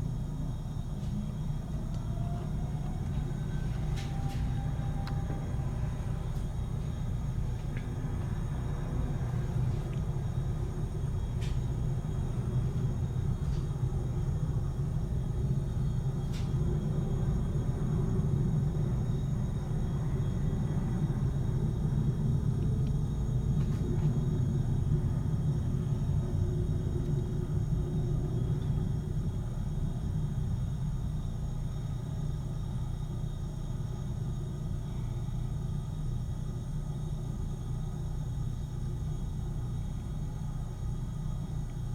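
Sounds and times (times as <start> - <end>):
jet engines rumbling: 0.0 - 41.1
faint steady whine: 0.0 - 41.9.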